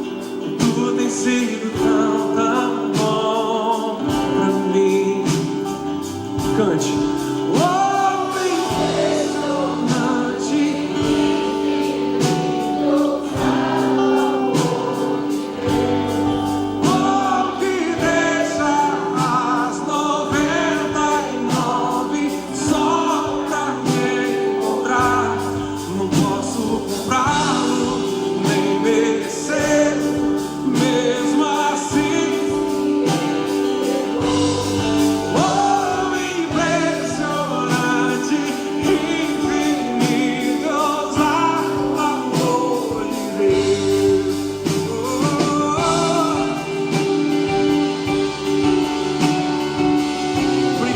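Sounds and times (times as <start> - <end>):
voices singing gospel song: 0.0 - 50.9
steady beat: 5.3 - 50.9.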